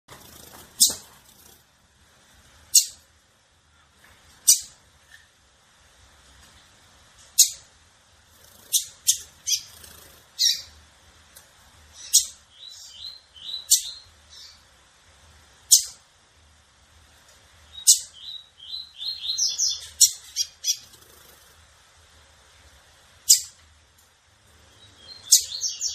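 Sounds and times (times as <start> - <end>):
soft bird twittering: 8.4 - 10.8, 11.9 - 14.6, 17.7 - 21.5, 24.7 - 25.9.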